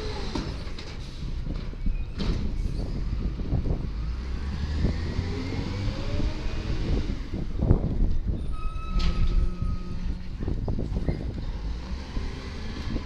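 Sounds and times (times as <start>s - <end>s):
garbage truck engine rumbling: 0.0s - 13.0s
clunks: 8.0s - 11.5s.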